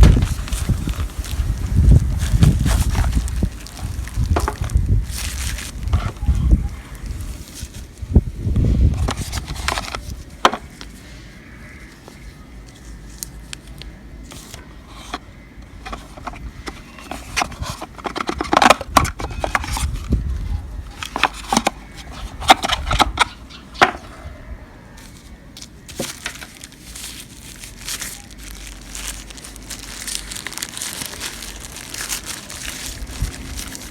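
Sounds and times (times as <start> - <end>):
packaging rustling: 0.0 - 8.1, 8.7 - 11.1, 11.7 - 24.1, 25.0 - 33.9
handling taps and scrapes: 4.4 - 4.8, 8.9 - 11.0, 12.1 - 24.2.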